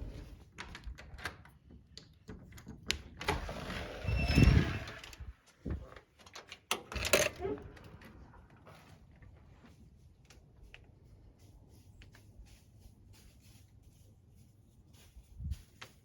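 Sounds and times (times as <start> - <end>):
brief squeak: 3.9 - 5.0
rustling: 8.0 - 16.0.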